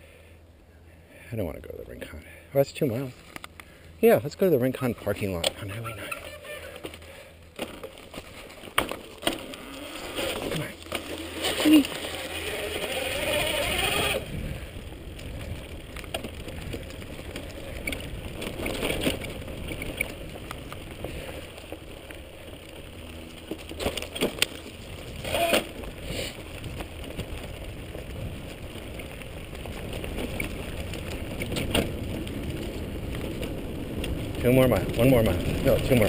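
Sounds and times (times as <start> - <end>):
bike riding low rumble: 0.0 - 36.0.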